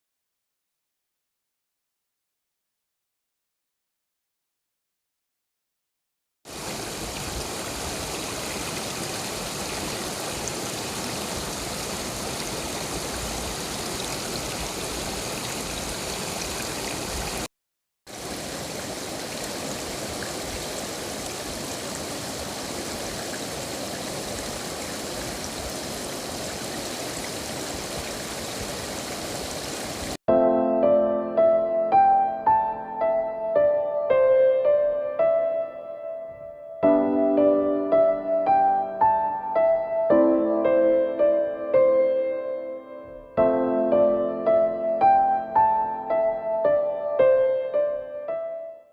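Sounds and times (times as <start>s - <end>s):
flowing water rushing: 6.5s - 17.5s, 18.1s - 30.2s.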